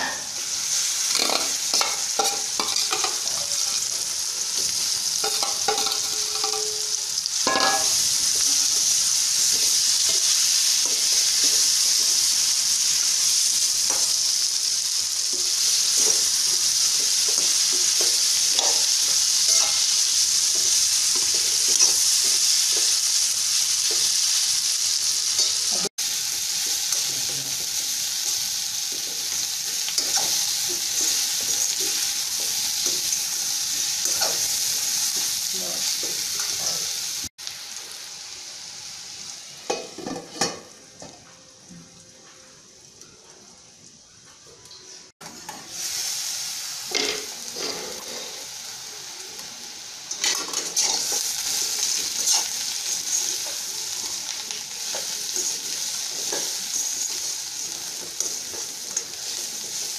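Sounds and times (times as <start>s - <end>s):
food sizzling in oil: 0.0s - 59.9s
metal spatula scraping a pan: 46.9s - 48.5s, 50.1s - 53.6s.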